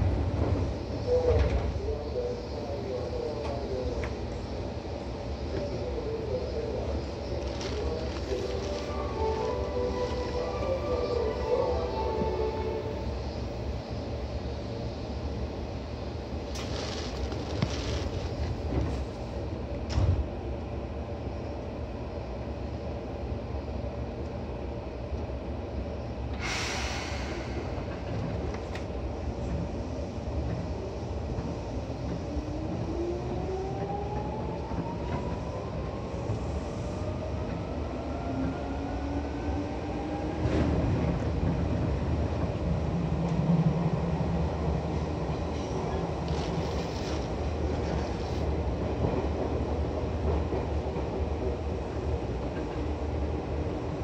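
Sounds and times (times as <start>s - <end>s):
train clunk: 0.0s - 1.8s, 16.5s - 19.2s, 19.8s - 20.3s
train rumble and wheel noise: 0.0s - 54.0s.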